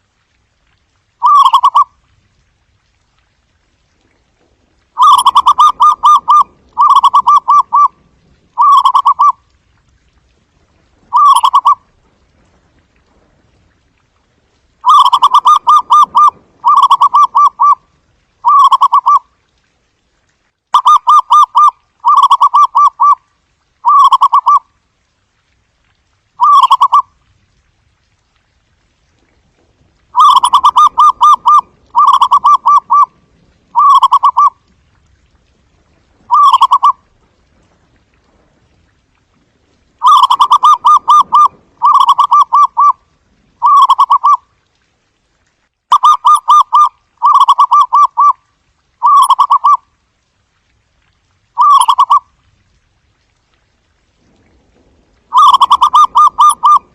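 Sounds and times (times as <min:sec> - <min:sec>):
dove cooing: 0:01.2 - 0:01.9, 0:05.0 - 0:07.9, 0:08.6 - 0:09.4, 0:11.1 - 0:11.8, 0:14.8 - 0:17.8, 0:18.4 - 0:19.2, 0:30.2 - 0:33.1, 0:33.7 - 0:34.6, 0:36.3 - 0:37.0, 0:40.0 - 0:43.0, 0:43.6 - 0:44.4, 0:49.0 - 0:49.8, 0:51.6 - 0:52.2, 0:55.3 - 0:56.9.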